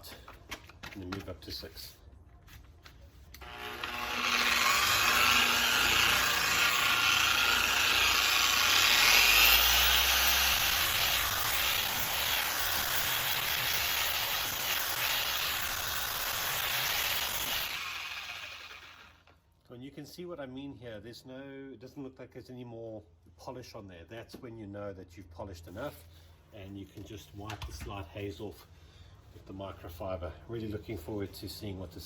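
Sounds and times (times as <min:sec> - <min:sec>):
polisher whining: 0:03.4 - 0:19.1.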